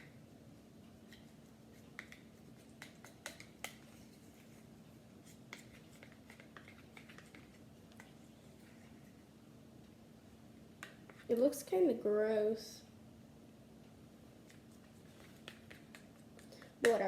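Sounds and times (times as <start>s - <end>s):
faint steady hum: 0.0s - 17.0s
spoon stirring thick mixture: 1.0s - 9.2s, 10.8s - 11.5s, 14.5s - 17.0s.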